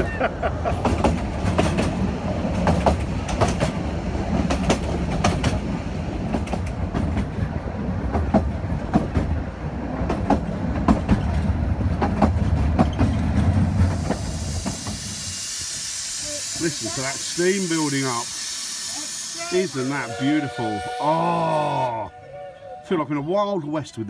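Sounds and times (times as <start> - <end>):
train carriage low rumble: 0.0 - 24.0
wheels clicking over rail joints: 0.7 - 15.1.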